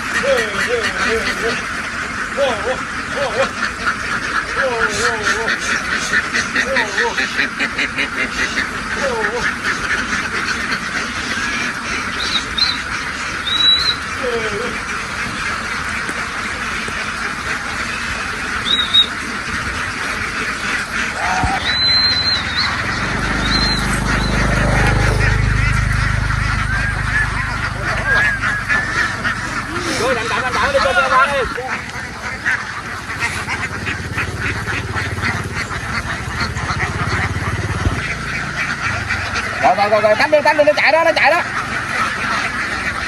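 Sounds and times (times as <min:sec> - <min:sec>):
engine running: 0:00.0 - 0:43.0
flock of ducks quacking: 0:00.0 - 0:43.0
high-pitched bird call: 0:12.1 - 0:14.1, 0:18.6 - 0:19.2, 0:21.6 - 0:37.5.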